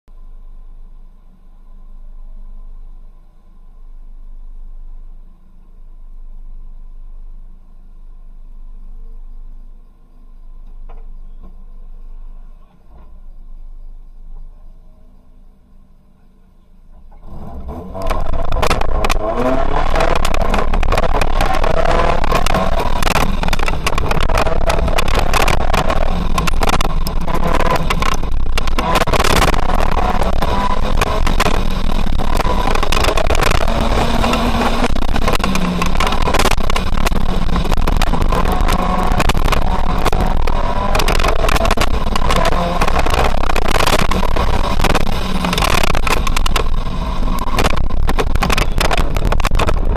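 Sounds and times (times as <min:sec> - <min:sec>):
car engine revving: 0:17.1 - 0:49.9.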